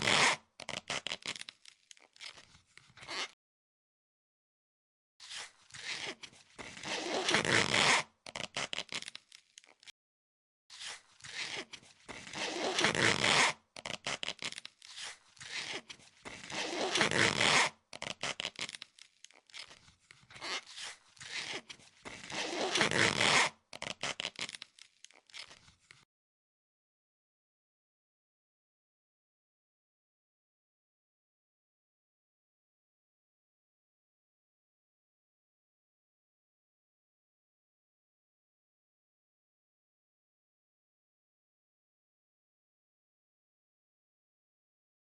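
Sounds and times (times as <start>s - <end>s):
vinyl wrap peeling off: 0.0s - 2.4s, 10.8s - 26.0s.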